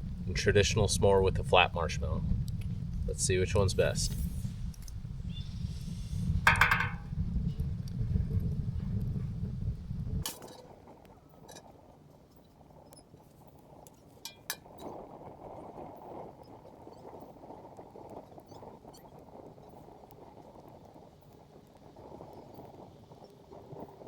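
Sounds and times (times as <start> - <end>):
low rumble: 0.0 - 10.2
fire crackling: 0.0 - 24.0.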